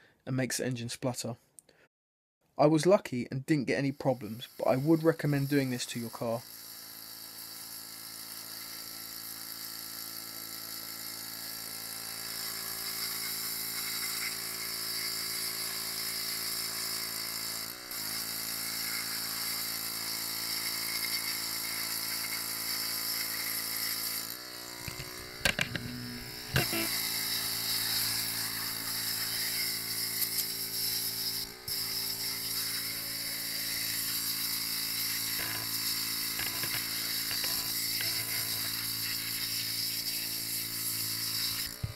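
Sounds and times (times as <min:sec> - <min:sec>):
pressure washer motor hum: 0:04.0 - 0:41.9
water spray hissing: 0:26.4 - 0:41.9.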